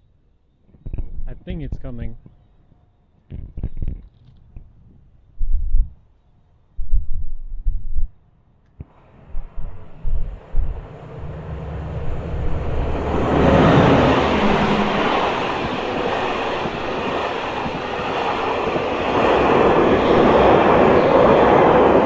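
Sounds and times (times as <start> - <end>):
train rumble: 8.8 - 22.0
train wheels rushing on rails: 8.8 - 22.0.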